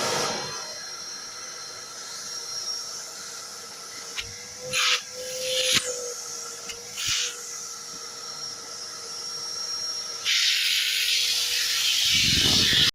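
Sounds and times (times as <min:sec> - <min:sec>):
vacuum cleaner motor hum: 0:00.0 - 0:12.9
air hissing through hose: 0:04.1 - 0:07.5, 0:10.2 - 0:12.9.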